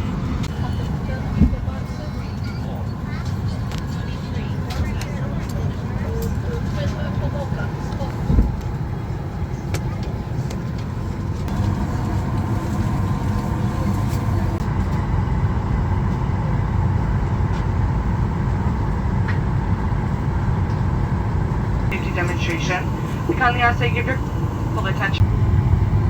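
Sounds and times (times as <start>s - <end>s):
cabin ventilation rumble: 0.0s - 26.0s
faint steady hum: 11.5s - 14.7s, 21.8s - 26.0s.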